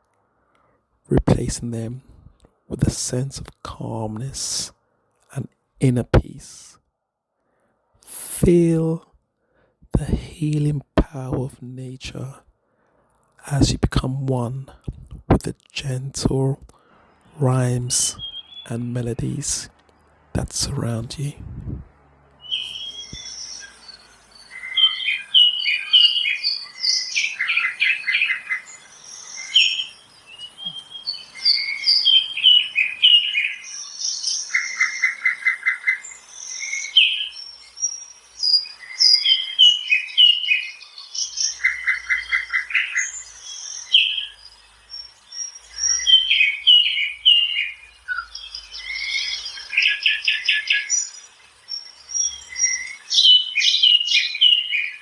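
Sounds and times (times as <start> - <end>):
bird trill: 18.1 - 18.7, 22.4 - 55.0
songbirds chirping and whistling: 18.1 - 18.7, 22.4 - 55.0.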